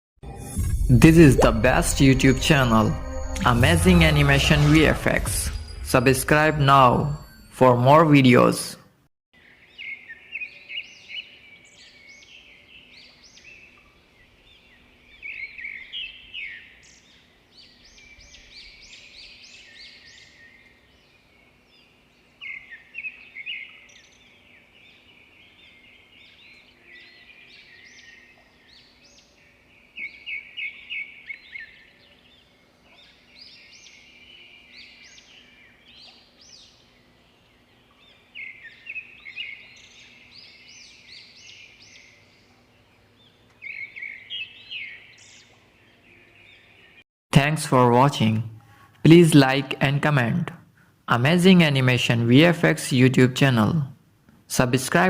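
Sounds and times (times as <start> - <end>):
songbirds chirping and singing: 9.4 - 48.4.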